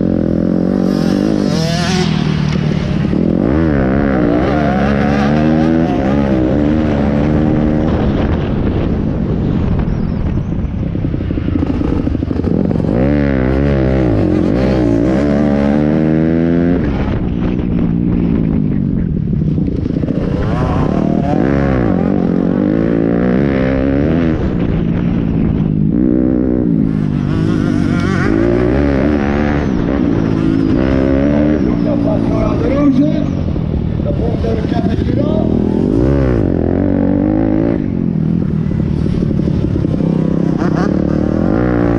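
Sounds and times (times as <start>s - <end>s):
motorbike engines revving: 0.0s - 41.9s.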